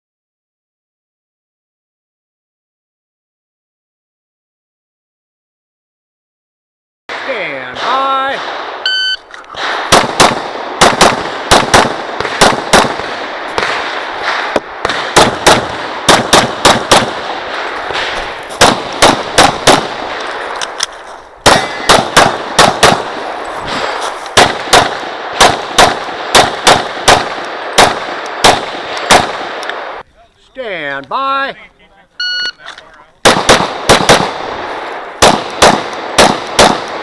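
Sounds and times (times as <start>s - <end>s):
rapid pistol shots with echo: 7.1s - 8.8s, 9.5s - 20.6s, 21.4s - 30.0s, 33.2s - 37.0s.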